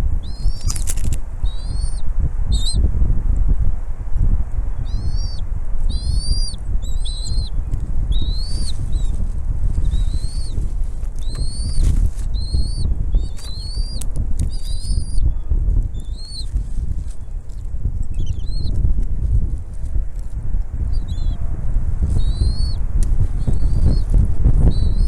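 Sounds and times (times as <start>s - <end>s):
heavy low rumble: 0.0s - 25.0s
eagle chirping calls: 0.2s - 2.8s, 4.8s - 9.2s, 9.8s - 17.5s, 18.1s - 18.8s, 20.8s - 21.4s, 22.1s - 25.0s.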